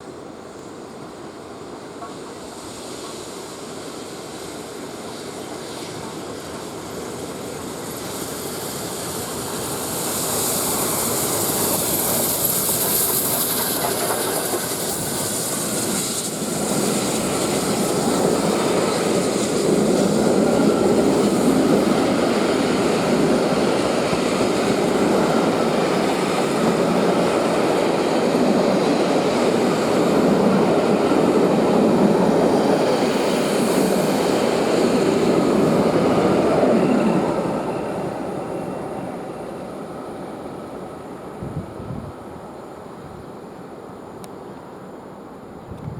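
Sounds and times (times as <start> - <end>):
steam train passing: 0.0 - 45.9
high hiss: 0.5 - 45.9
wheel clatter on rails: 11.6 - 16.0.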